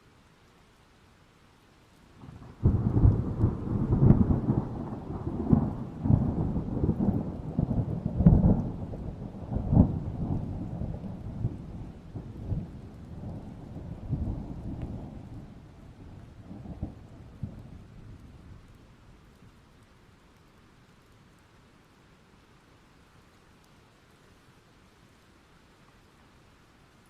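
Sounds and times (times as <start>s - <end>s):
thunder rumbling: 2.2s - 18.8s.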